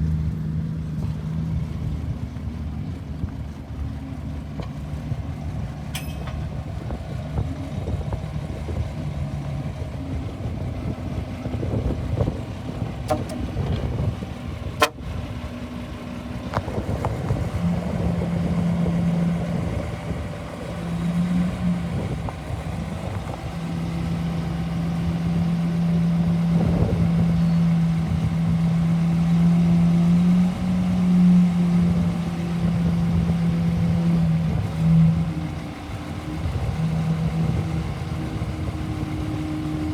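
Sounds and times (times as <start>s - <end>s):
bulldozer diesel engine running: 0.0s - 39.9s
sharp metallic knocks: 5.9s - 6.5s.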